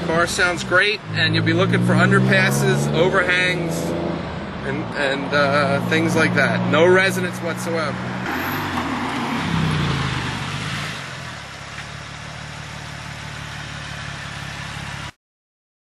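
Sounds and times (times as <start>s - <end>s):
car exhaust drone: 0.0s - 15.1s.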